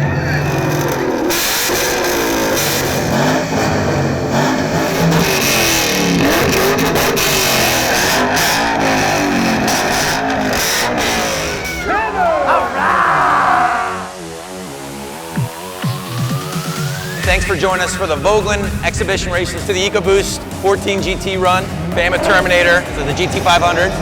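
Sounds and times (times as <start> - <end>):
car engines revving: 0.0 - 14.6, 16.6 - 24.0
background music: 11.2 - 24.0.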